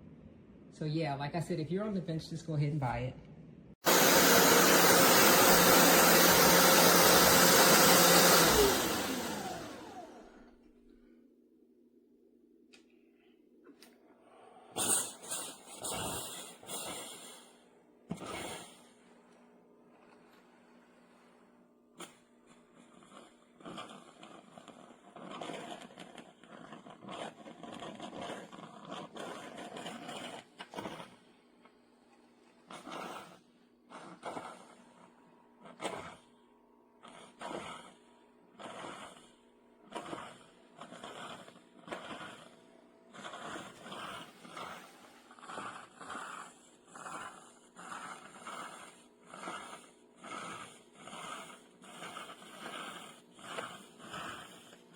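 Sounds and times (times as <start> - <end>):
carpet cleaner suction motor whine: 3.8 - 10.7, 39.8 - 48.7.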